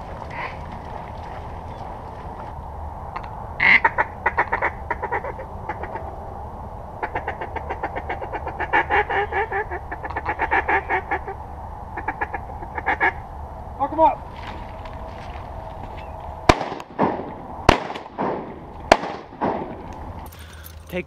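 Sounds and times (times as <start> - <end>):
duck quacking: 3.6 - 6.0, 7.0 - 11.4, 12.0 - 13.2.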